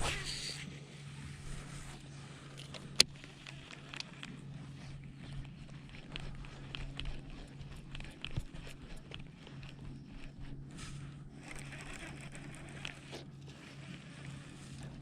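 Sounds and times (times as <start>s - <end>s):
steady low hum: 0.0s - 15.0s
small clicks and knocks: 2.5s - 4.4s.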